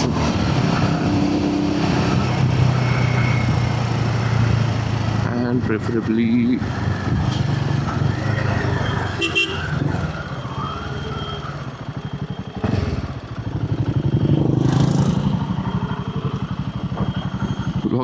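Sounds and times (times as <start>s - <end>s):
motorcycle engine running: 9.2s - 18.0s.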